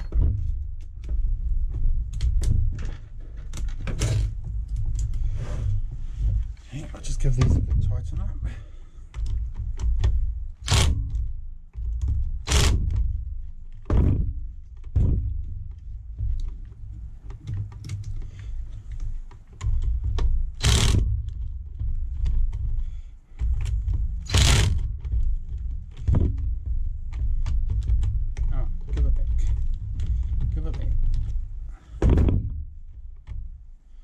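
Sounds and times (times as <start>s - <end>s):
low handling rumble: 0.0s - 34.0s
tool clicking and scraping metal: 10.6s - 11.3s, 12.4s - 13.1s, 17.3s - 25.2s
louder knocks: 13.8s - 16.4s, 32.0s - 32.8s.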